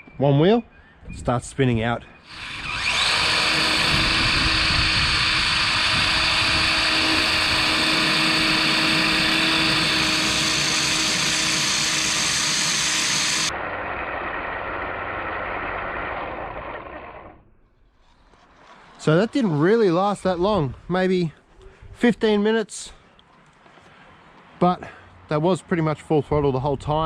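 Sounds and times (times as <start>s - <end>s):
toy truck electric motor whining: 2.2s - 17.4s.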